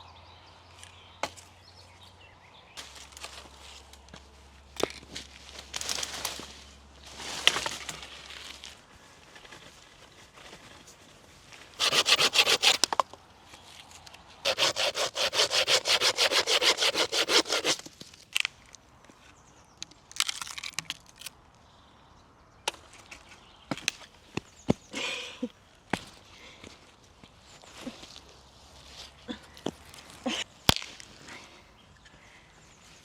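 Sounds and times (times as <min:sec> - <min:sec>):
hand saw cutting wood: 0:11.8 - 0:13.0, 0:14.5 - 0:17.8.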